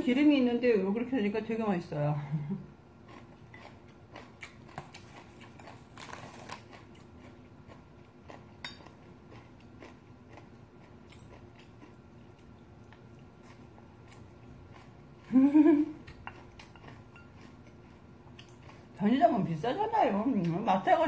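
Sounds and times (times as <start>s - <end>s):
chewing and mouth clicks: 3.0s - 15.3s, 16.0s - 19.0s.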